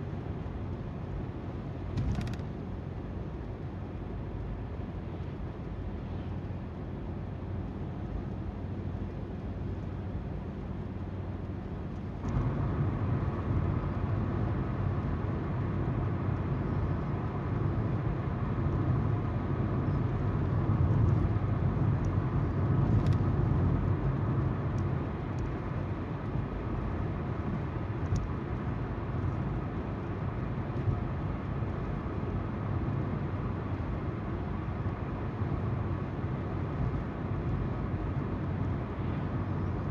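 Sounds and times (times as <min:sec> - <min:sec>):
car engine hum: 0:06.8 - 0:39.9.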